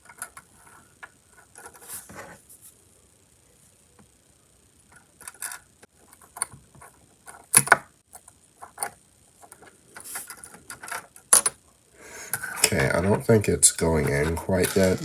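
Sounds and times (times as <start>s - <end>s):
plastic parts clicking and rattling: 4.9s - 11.6s, 13.9s - 15.0s.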